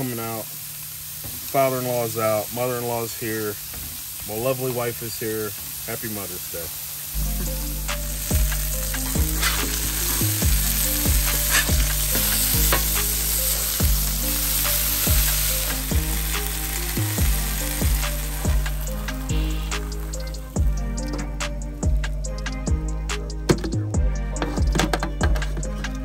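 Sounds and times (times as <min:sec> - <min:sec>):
meat sizzling: 0:00.0 - 0:23.4
background music with beat: 0:07.2 - 0:26.0.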